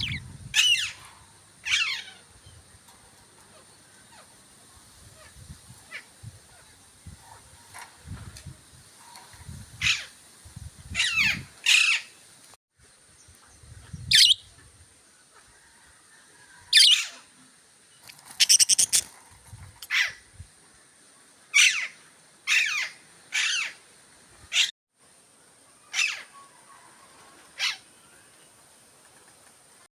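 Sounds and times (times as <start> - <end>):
budgerigar chirping: 14.1 - 14.4, 18.4 - 19.1.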